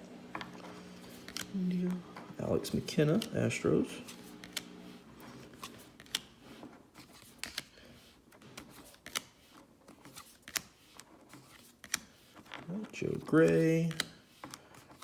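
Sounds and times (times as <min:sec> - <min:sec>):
cards clicking and snapping: 0:00.3 - 0:15.0.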